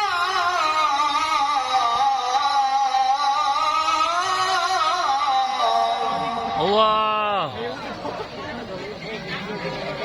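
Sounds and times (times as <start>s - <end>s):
man reciting long wavering note: 0.0s - 7.3s.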